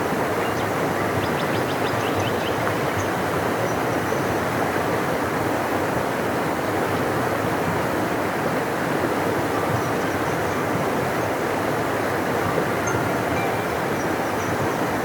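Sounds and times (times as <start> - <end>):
river rushing: 4.4 - 15.0.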